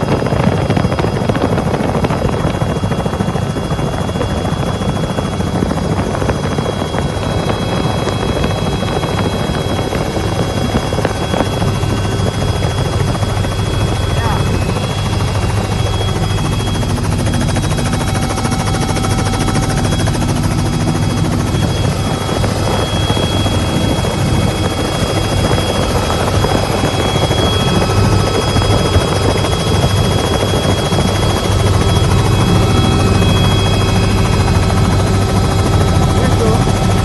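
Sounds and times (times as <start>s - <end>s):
engine running steadily: 0.0s - 37.0s.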